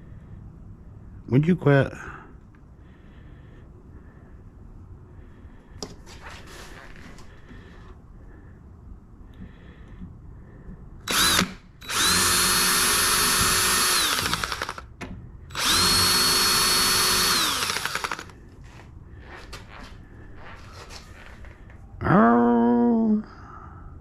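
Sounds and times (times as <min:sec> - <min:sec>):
electric drill motor running: 0:11.1 - 0:14.9, 0:15.5 - 0:18.4.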